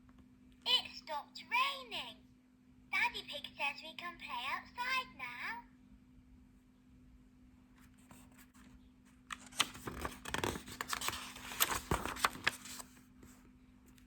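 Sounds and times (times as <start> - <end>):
book page turning rustle: 7.8 - 14.0.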